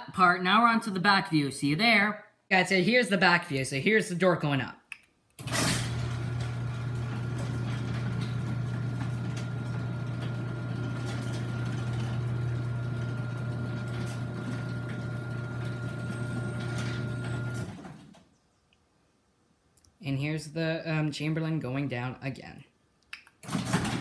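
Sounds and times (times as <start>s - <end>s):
garage door opener motor humming: 5.4s - 18.2s, 23.4s - 24.0s.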